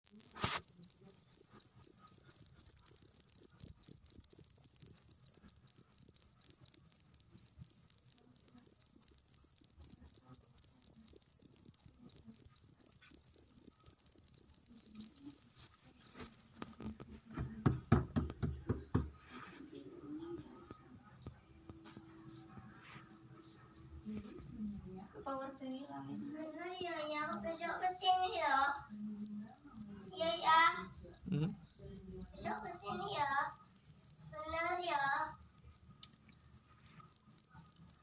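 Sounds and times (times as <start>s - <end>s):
cricket chirping trill: 0.1s - 17.6s, 23.1s - 38.0s
faint knocks and rustles: 16.2s - 23.2s.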